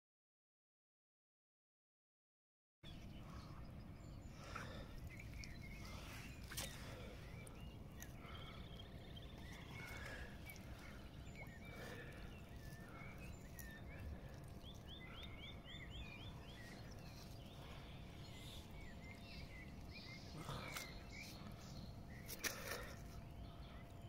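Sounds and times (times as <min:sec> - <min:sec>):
faint small birds chirping: 0:02.8 - 0:24.0.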